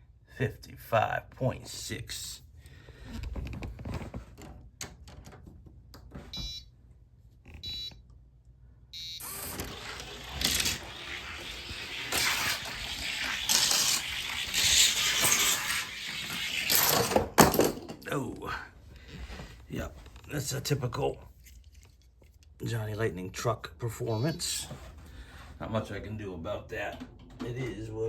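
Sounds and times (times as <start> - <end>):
short electronic beeps: 7.6 - 7.9, 9.0 - 9.3
toy truck wheels rolling on track: 9.2 - 17.6.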